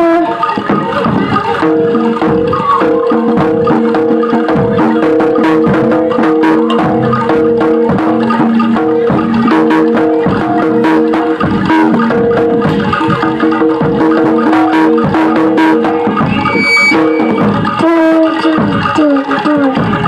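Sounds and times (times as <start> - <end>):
drum strokes: 0.0 - 20.0
gamelan music: 0.0 - 20.0
struck metal mallet instruments: 0.0 - 20.0.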